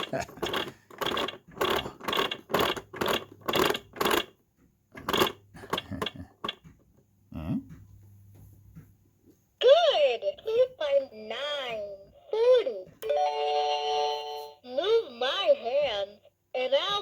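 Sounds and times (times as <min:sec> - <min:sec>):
toy gear mechanism clicking: 0:00.0 - 0:06.7.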